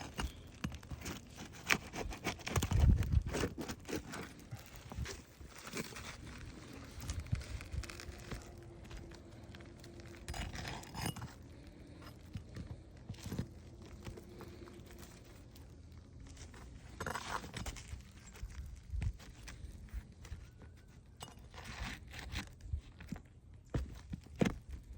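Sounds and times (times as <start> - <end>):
nails scraping and clinking: 10.0 - 12.2.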